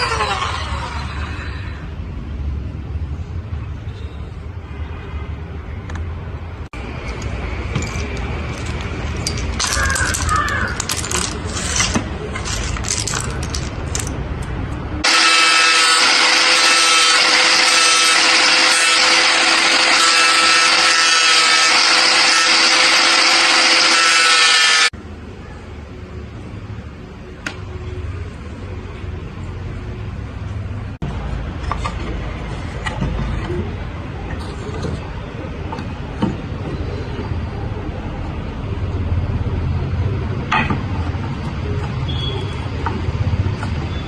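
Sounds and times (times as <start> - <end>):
small power tool on shell: 0.0 - 1.3, 15.0 - 24.9
scraping and clicking: 7.0 - 14.8.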